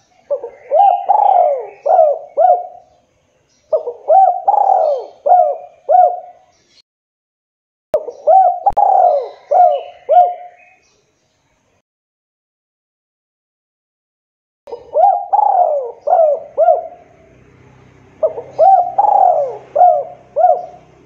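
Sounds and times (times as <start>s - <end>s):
dove cooing: 0.0s - 3.0s, 3.7s - 6.5s, 8.0s - 10.8s, 14.7s - 17.4s, 18.2s - 21.0s
small birds chirping: 0.0s - 6.8s, 8.0s - 11.8s, 14.7s - 21.0s.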